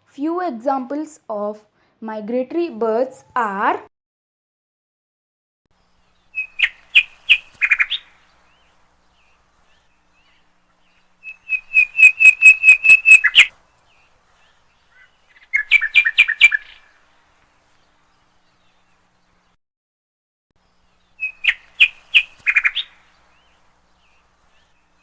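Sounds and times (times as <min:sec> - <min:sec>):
small bird chirping: 0:06.0 - 0:17.0, 0:20.6 - 0:25.0.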